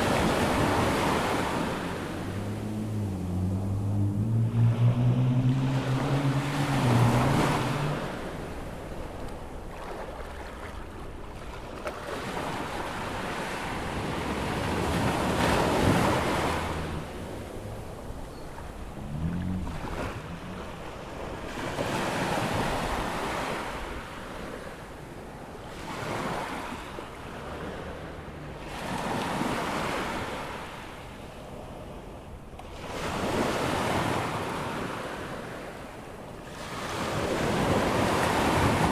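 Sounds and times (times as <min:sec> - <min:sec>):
wind on microphone: 0:00.0 - 0:10.3
low engine hum: 0:00.0 - 0:33.6
ocean waves breaking on beach: 0:00.0 - 0:38.9.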